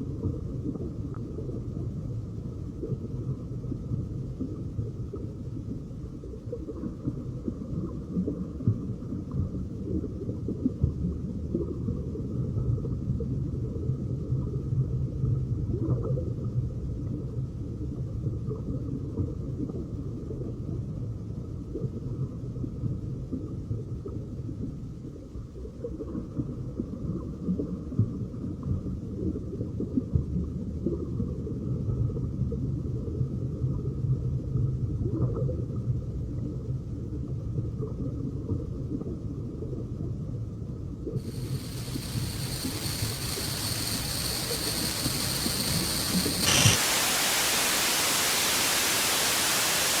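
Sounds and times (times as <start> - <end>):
faint steady hiss: 41.2 - 50.0
high-pitched whines: 41.2 - 50.0
low rumble with crackles: 41.2 - 50.0.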